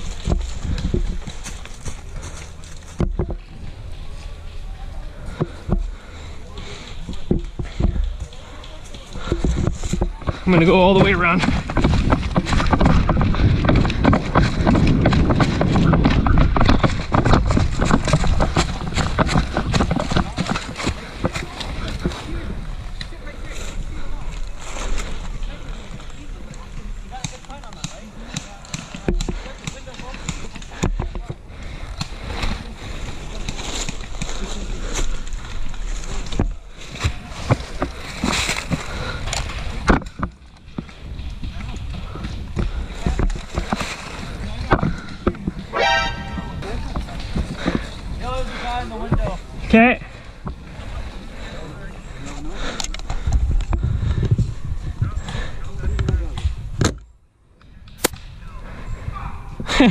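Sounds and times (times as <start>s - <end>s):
low wind rumble: 0.0s - 27.1s, 31.0s - 59.9s
gear rustling and rattling: 0.0s - 27.7s
rustling through brush: 0.0s - 55.6s
brisk footsteps: 0.0s - 56.7s.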